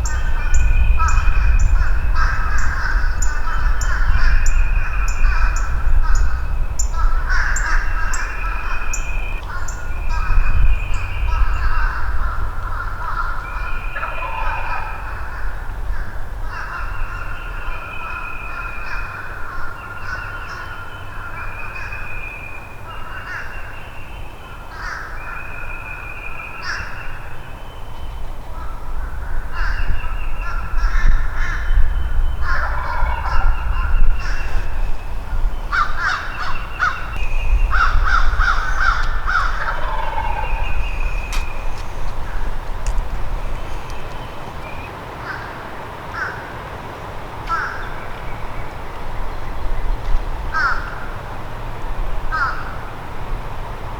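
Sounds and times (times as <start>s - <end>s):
birds calling: 0.0s - 53.9s
turkeys gobbling: 14.0s - 15.3s, 32.5s - 34.4s, 37.8s - 43.0s
low rumble: 30.2s - 44.7s.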